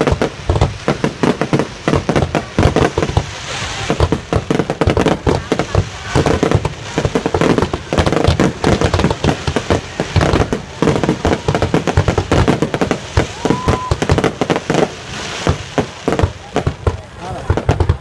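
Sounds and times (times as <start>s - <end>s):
fireworks bangs and crackles: 0.0s - 18.0s
firework whistle: 12.4s - 16.0s.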